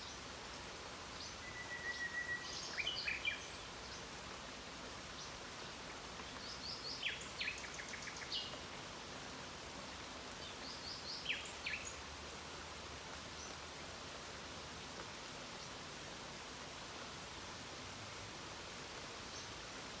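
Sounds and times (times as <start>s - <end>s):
songbird chirping: 1.1s - 4.2s, 10.3s - 12.4s.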